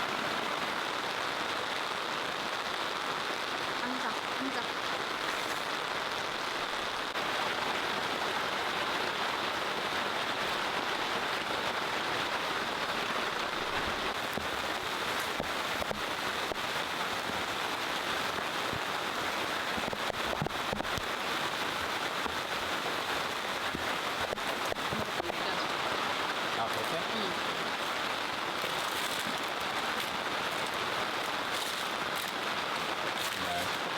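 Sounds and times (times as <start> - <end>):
steady rain falling: 0.0 - 33.9
raindrops tapping: 9.8 - 33.9.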